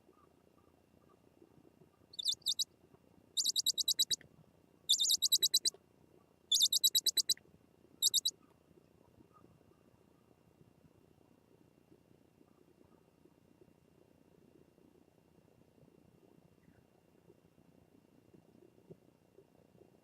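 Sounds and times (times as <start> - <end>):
bird chipping high-pitched: 2.2 - 2.6, 3.4 - 4.2, 4.9 - 5.7, 6.5 - 7.4, 8.0 - 8.3.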